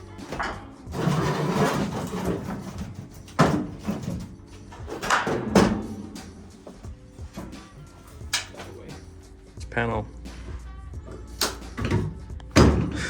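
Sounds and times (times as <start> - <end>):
metal scraping: 0.0 - 8.8.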